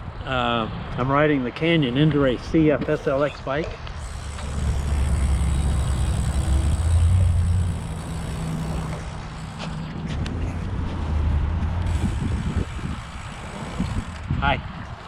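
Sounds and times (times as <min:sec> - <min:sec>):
road noise rumble: 0:00.0 - 0:15.0
passing motor traffic: 0:01.6 - 0:15.0
wind buffeting microphone: 0:03.9 - 0:15.0.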